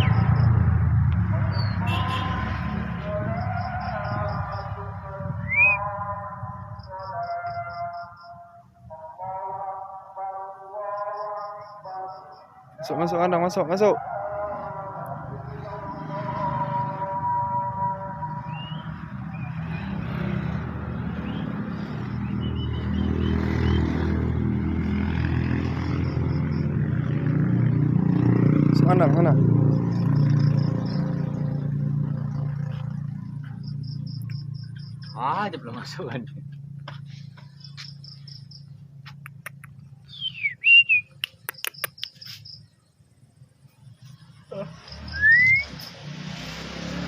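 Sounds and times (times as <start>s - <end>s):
vehicle engine running: 0.0s - 6.9s, 19.8s - 46.2s
bird whistling and chirping: 1.5s - 1.9s, 5.4s - 5.9s, 18.5s - 19.6s, 40.0s - 42.6s, 45.0s - 45.9s
faint bird chirps: 39.4s - 43.0s.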